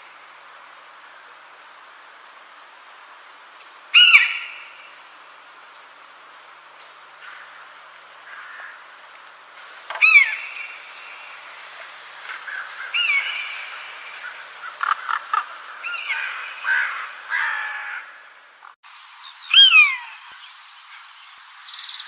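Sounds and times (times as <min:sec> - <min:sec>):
background bird chorus: 0:00.0 - 0:22.0
loud bird calls bending in pitch: 0:03.9 - 0:04.9, 0:09.9 - 0:11.3, 0:12.3 - 0:18.8.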